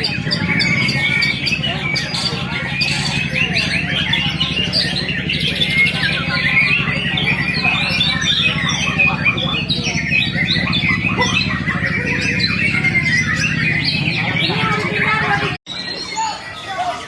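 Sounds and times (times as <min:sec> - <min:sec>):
steady low hum: 0:00.0 - 0:15.6
small birds chirping and squawking: 0:00.0 - 0:17.0.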